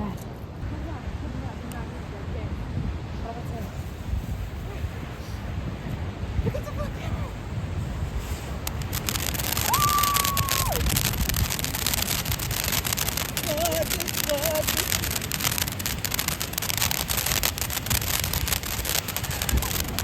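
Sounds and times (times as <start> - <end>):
wind rumbling on microphone: 0.0 - 20.0
firework crackling: 6.4 - 20.0.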